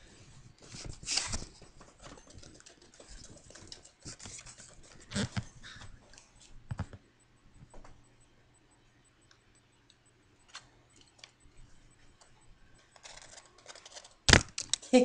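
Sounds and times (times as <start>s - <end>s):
irregular rustling and scratching: 0.2s - 6.9s, 11.7s - 14.3s.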